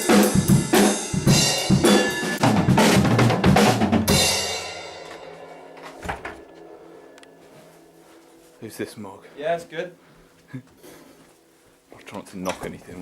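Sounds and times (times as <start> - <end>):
drum kit played hard: 0.0 - 6.1
cymbals ringing: 4.1 - 10.2.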